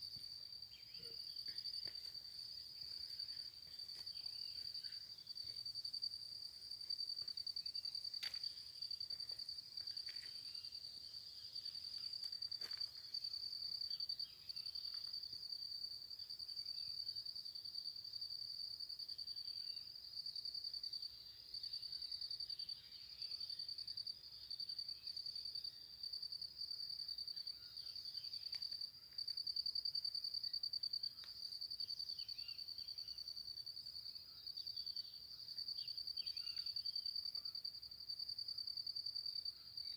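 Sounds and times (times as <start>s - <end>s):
faint bird chirps: 0.7s - 1.8s, 32.1s - 33.3s, 35.8s - 37.5s.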